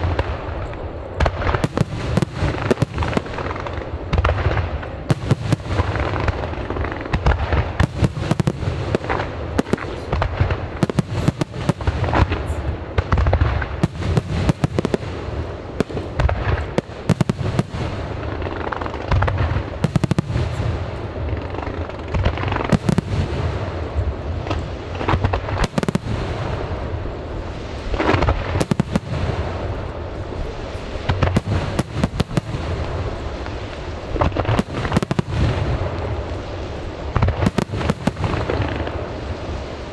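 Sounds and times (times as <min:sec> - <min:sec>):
fireworks booming and crackling: 0:00.0 - 0:39.9.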